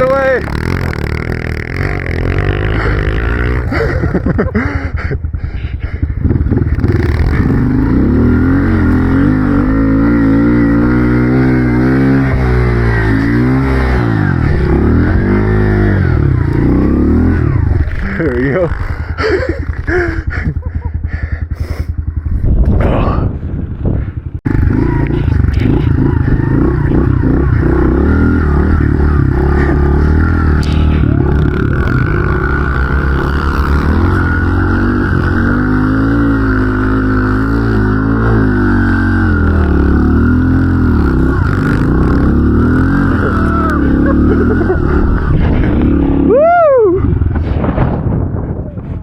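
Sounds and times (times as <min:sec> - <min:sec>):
pit bike engine revving: 0:00.0 - 0:23.2, 0:24.1 - 0:47.7.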